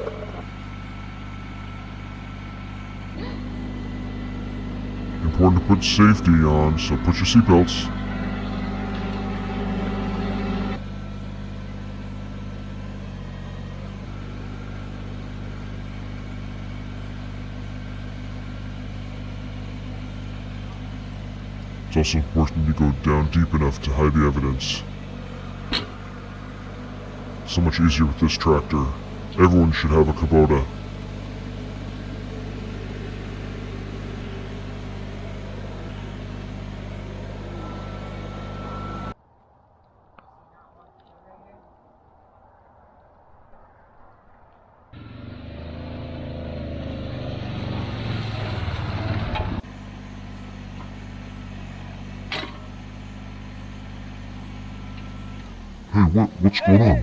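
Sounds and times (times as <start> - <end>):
faint high whine: 0.0 - 11.8, 21.6 - 39.2
tractor diesel engine running: 0.0 - 39.2, 45.0 - 57.0.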